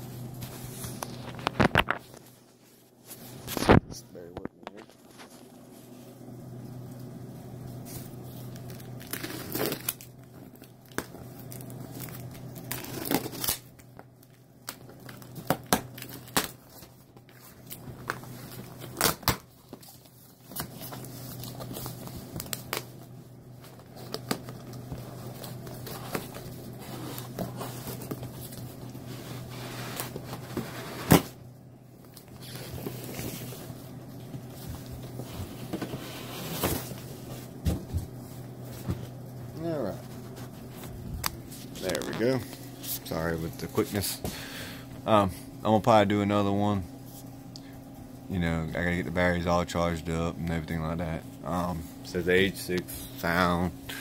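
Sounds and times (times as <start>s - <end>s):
plastic and paper crinkling: 0.4s - 6.0s, 7.0s - 31.0s, 32.0s - 44.2s.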